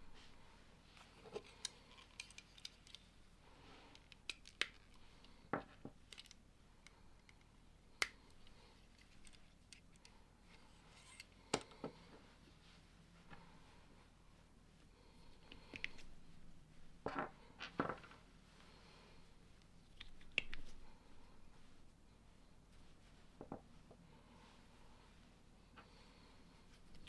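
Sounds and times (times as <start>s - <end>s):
plastic bricks snapping together: 4.0s - 5.0s.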